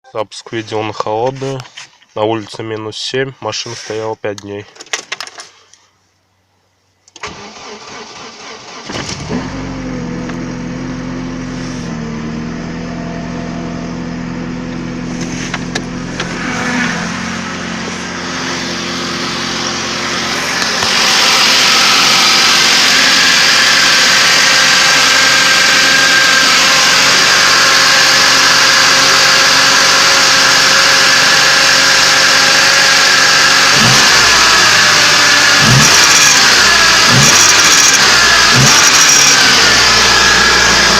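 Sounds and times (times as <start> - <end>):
car engine cold idling: 7.1 - 40.9
starter motor cranking: 33.2 - 40.9.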